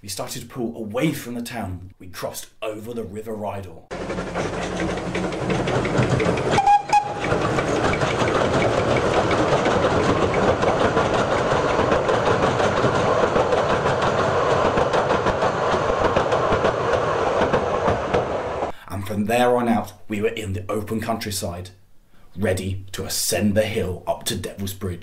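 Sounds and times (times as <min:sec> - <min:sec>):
railway coaches rumbling over bridge: 0:03.9 - 0:18.8
wheels clickety-clack over rail joints: 0:03.9 - 0:18.8.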